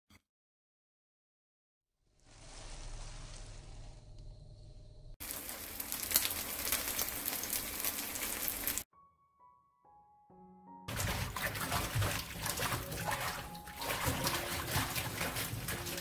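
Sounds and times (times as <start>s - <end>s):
batter sizzling in oil: 5.2s - 8.9s.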